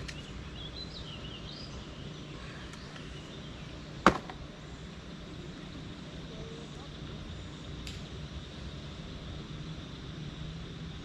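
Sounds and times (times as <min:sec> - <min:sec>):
bird chirping: 0:00.0 - 0:04.0.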